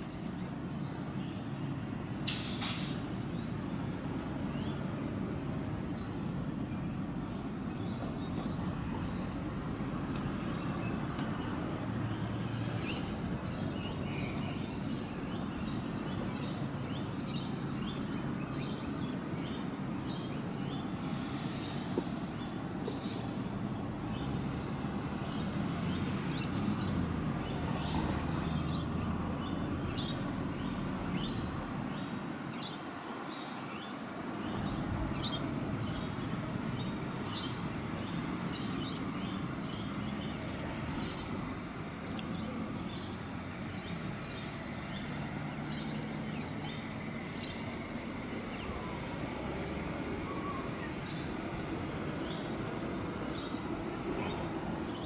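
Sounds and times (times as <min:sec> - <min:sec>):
birds chirping: 0:05.6 - 0:55.0
sweeping bird call: 0:20.6 - 0:23.4, 0:50.1 - 0:52.6.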